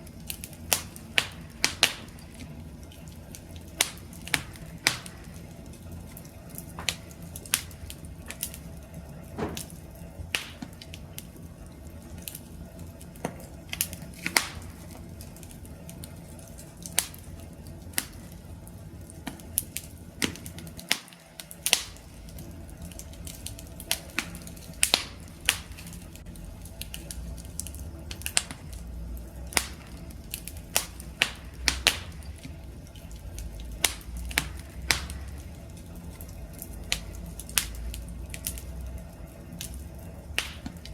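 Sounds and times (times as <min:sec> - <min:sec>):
campfire crackling: 0:00.0 - 0:40.9.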